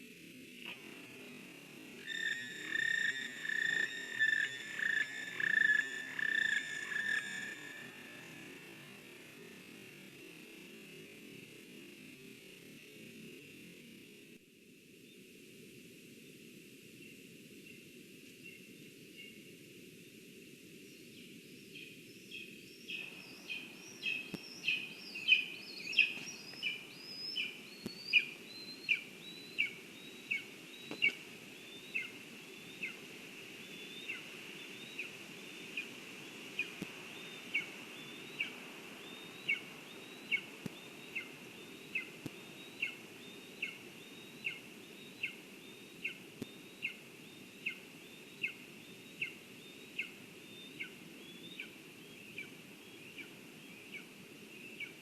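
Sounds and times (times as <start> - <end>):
steady low hiss: 0.0 - 55.0
bird repeating sharp call: 2.0 - 8.5.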